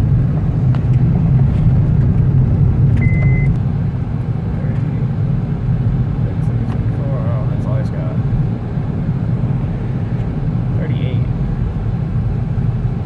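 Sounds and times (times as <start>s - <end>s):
vehicle rumble on road: 0.0s - 13.0s
short high beep: 3.0s - 3.5s.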